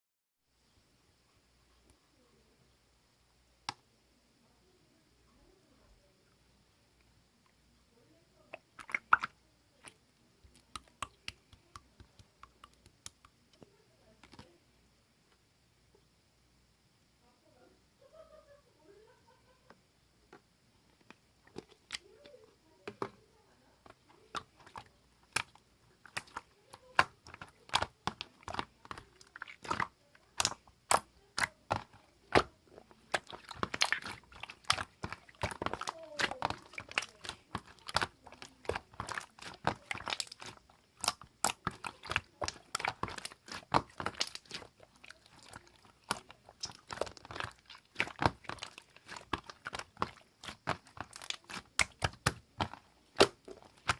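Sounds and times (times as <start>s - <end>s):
slime squeezed by hand: 24.3s - 53.9s.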